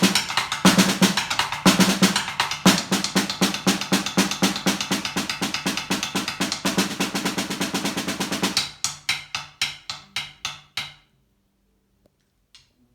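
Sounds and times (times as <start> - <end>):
snare drum strokes: 0.0 - 8.8.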